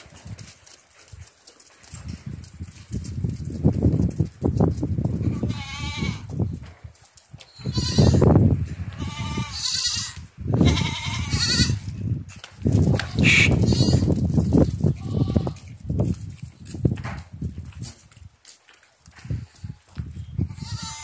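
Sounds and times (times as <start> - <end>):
goat kids bleating: 5.2 - 6.3, 7.5 - 8.3, 9.0 - 11.8, 13.0 - 14.1, 14.9 - 15.6, 20.5 - 21.0.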